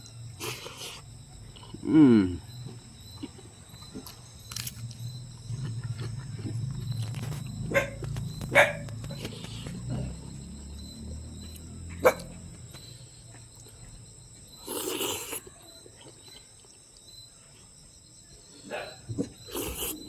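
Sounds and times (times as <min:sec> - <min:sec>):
eating mouth sounds: 0:00.4 - 0:10.3, 0:14.6 - 0:16.4, 0:19.5 - 0:20.0.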